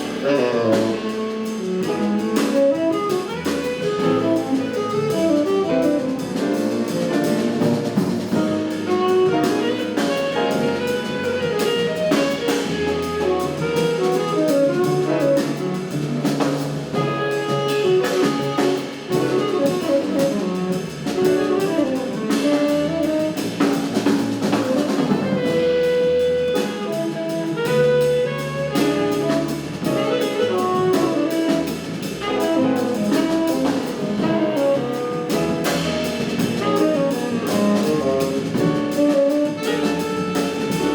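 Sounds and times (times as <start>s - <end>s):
drum kit cymbal strokes: 0.0s - 9.1s, 29.0s - 40.8s
double bass: 0.0s - 40.9s
piano: 0.0s - 40.9s
saxophone: 0.0s - 40.9s.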